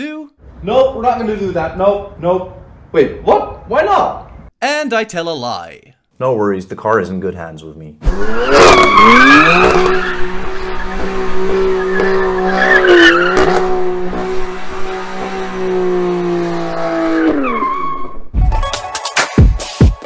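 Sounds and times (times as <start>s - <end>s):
car engine revving: 8.0s - 17.5s.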